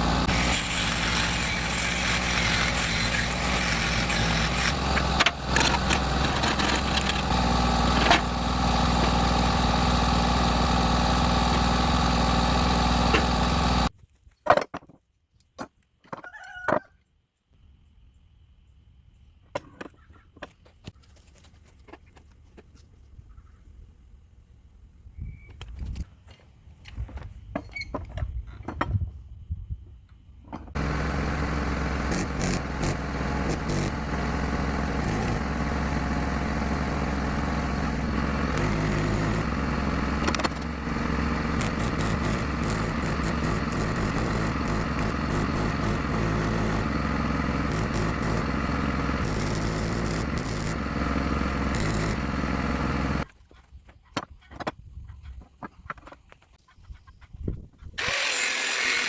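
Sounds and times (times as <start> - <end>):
motor-driven machine running: 0.0 - 13.9, 30.8 - 53.3, 58.0 - 59.0.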